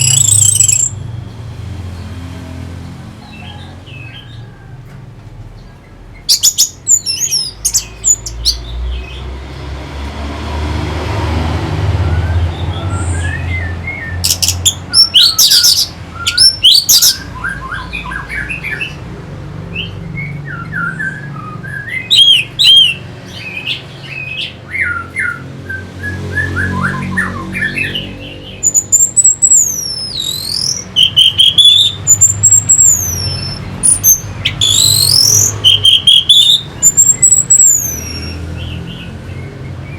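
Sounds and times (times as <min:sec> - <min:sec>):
thrush singing: 0:21.2 - 0:39.5.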